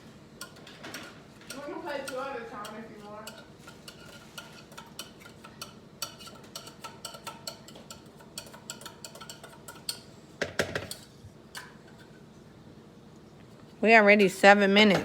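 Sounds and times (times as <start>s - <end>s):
metal spoon clinking on cans: 0.4s - 10.1s.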